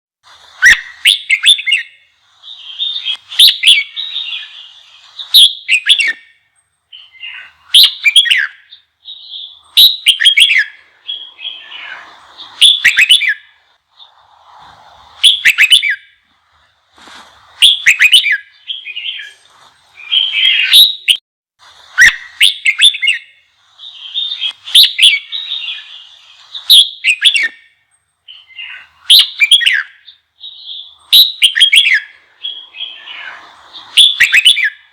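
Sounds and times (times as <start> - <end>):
bulbul singing: 0.5 - 14.5, 15.1 - 16.6, 17.5 - 21.2, 22.0 - 34.9.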